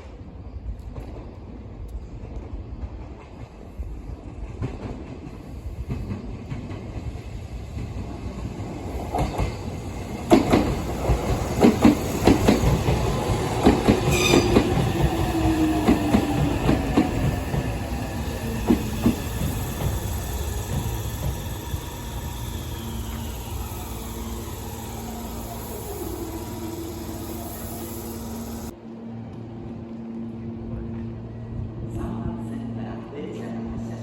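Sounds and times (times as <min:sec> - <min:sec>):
electric train rumble: 0:00.1 - 0:34.0
falling whine: 0:14.2 - 0:28.7.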